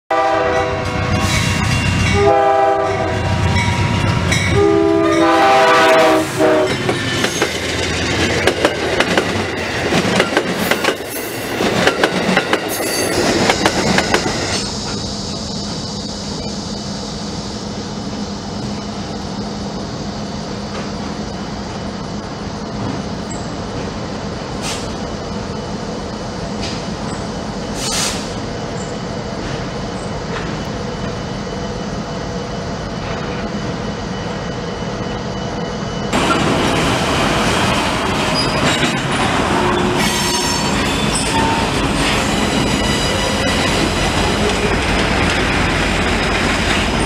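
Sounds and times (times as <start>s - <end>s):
train horn blasts: 0.1s - 6.8s, 39.5s - 41.9s
diesel locomotives humming: 0.1s - 47.0s
train wheels clacking on rails: 3.4s - 16.6s, 36.1s - 47.0s.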